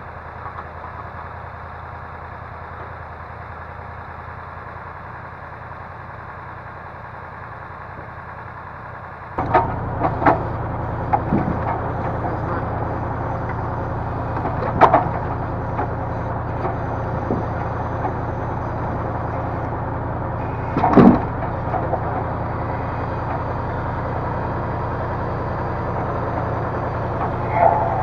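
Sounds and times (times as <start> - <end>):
diesel engine running: 0.0 - 28.0
logs knocking: 9.4 - 28.0.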